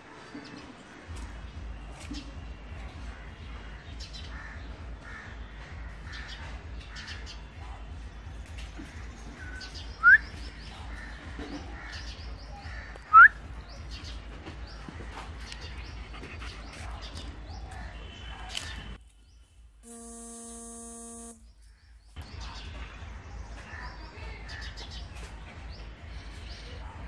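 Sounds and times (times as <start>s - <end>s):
birds calling and chirping: 0.3s - 20.3s.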